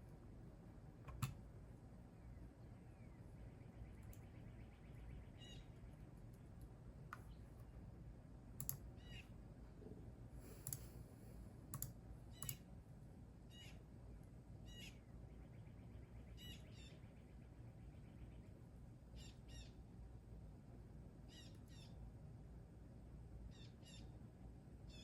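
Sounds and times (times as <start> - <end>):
low background hum: 0.0 - 25.0
birds chirping: 2.2 - 6.1
bird trill: 3.9 - 5.8.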